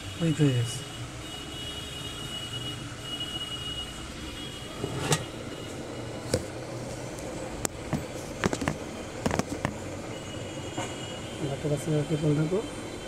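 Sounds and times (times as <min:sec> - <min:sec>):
tools clicking and tapping: 0:07.6 - 0:09.8.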